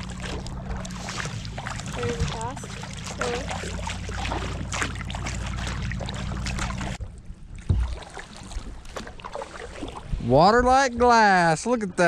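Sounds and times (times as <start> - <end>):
paddle splashes: 0.0 - 12.0
water rushing along hull: 0.0 - 12.0
thump: 7.6 - 7.9.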